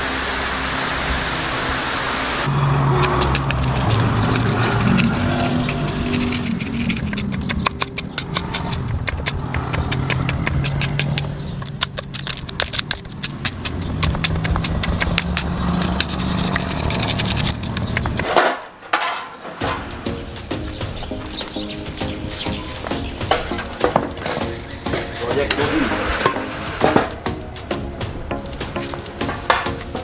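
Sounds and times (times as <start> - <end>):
small engine running unevenly: 0.0 - 18.2
rapid irregular clicking: 2.9 - 18.4, 19.6 - 30.0.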